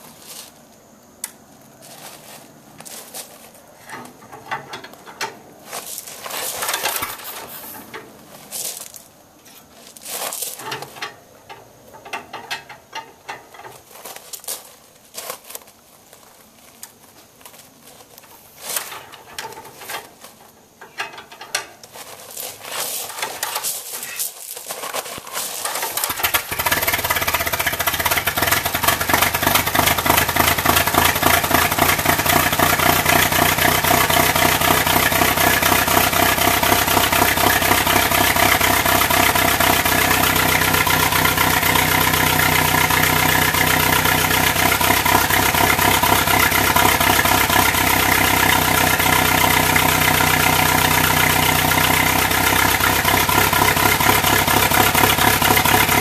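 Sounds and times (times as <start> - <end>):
knocks and clatter of engine work: 3.8 - 5.8, 10.6 - 13.9, 18.8 - 24.2, 24.8 - 56.0
car engine running: 25.6 - 56.0.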